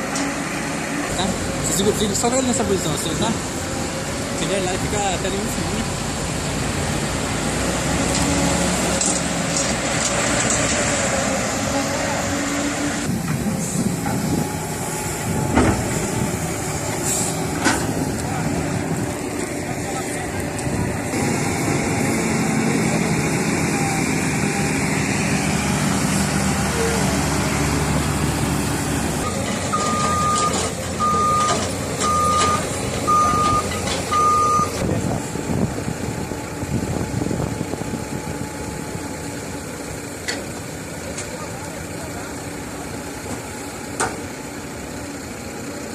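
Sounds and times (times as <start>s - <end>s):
backup alarm beeping: 29.2s - 34.8s.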